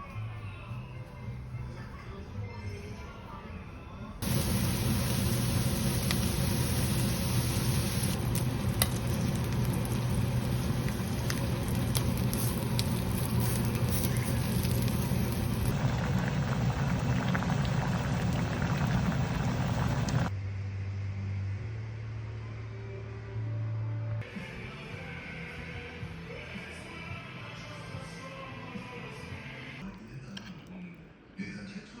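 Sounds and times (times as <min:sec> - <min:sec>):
food sizzling in a hot pan: 0:04.2 - 0:20.3
steady low hum: 0:04.2 - 0:20.3.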